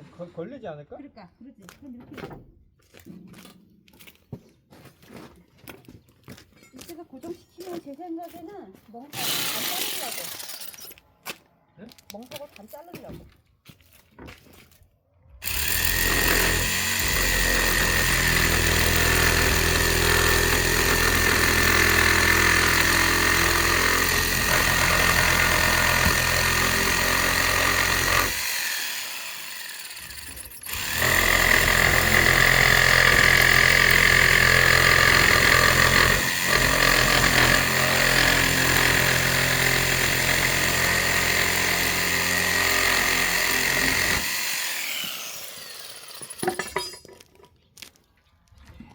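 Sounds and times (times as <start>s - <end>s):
power tool cutting: 9.1s - 10.9s, 15.4s - 46.4s.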